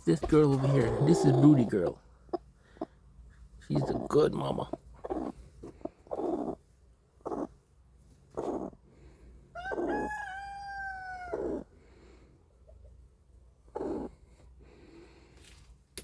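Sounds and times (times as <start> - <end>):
rooster crowing: 9.6 - 11.6.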